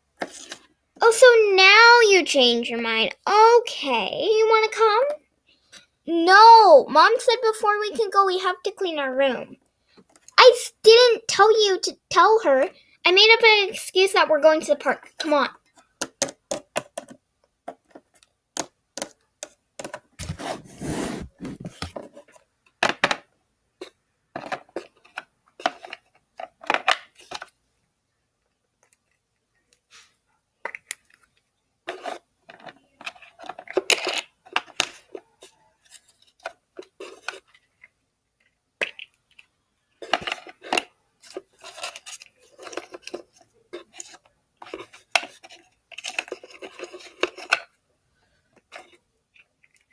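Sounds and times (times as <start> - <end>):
plastic toys clicking and clattering: 15.6 - 20.2, 21.9 - 27.6, 28.4 - 29.9, 30.6 - 47.8, 48.5 - 49.9
plastic rubbing: 20.2 - 22.1.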